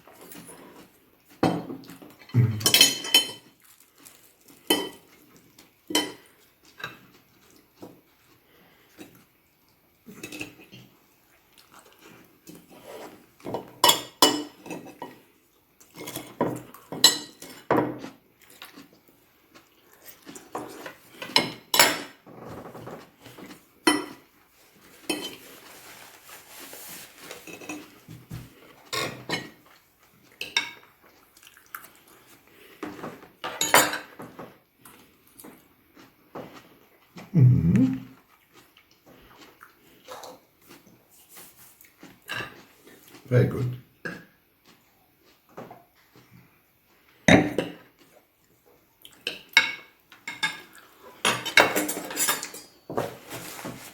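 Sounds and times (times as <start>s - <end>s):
cutlery clinking on plates: 1.4s - 3.6s, 4.7s - 5.1s, 5.9s - 7.1s, 13.4s - 15.2s, 15.9s - 18.2s, 20.5s - 24.2s, 25.0s - 25.5s, 27.5s - 29.6s, 30.4s - 30.9s, 32.8s - 34.6s, 49.2s - 53.8s.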